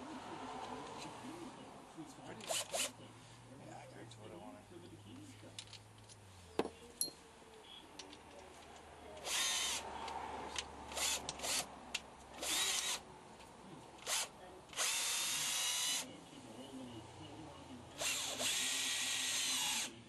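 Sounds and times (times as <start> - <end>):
power drill bursts: 2.4 - 3.0, 9.2 - 9.8, 10.9 - 11.7, 12.4 - 13.0, 14.0 - 16.1, 18.0 - 20.0.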